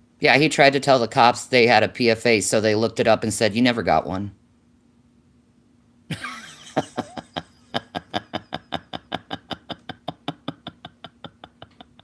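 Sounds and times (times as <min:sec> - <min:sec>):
laughter: 0:06.1 - 0:12.0.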